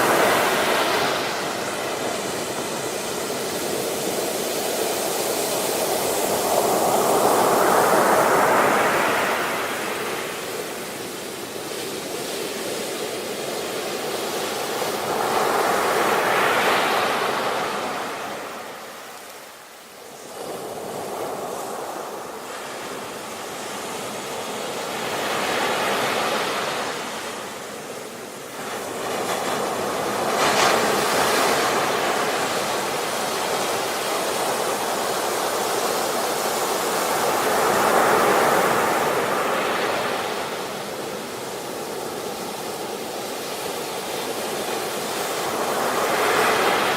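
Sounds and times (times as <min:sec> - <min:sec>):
ocean waves breaking on shore: 0:00.0 - 0:46.9.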